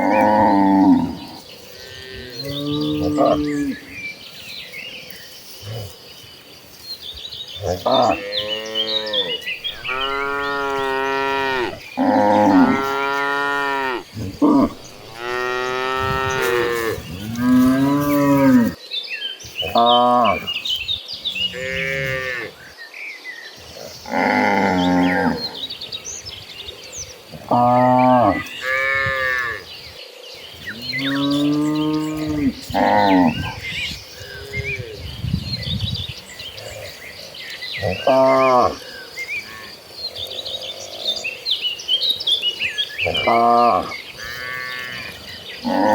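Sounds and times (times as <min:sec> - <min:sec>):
small birds chirping: 0:00.0 - 0:45.9
cattle mooing: 0:07.6 - 0:18.8, 0:43.1 - 0:45.9.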